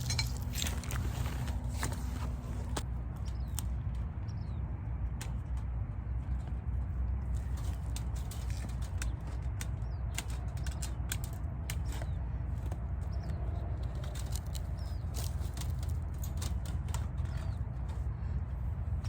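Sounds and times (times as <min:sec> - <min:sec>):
wire mesh clicking and rattling: 0:00.0 - 0:02.0, 0:05.1 - 0:18.0.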